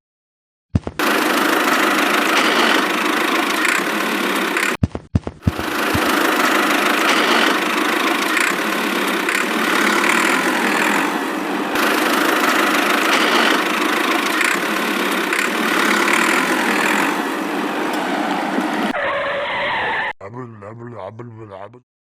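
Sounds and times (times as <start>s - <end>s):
engine running: 1.0s - 4.8s, 5.4s - 19.0s.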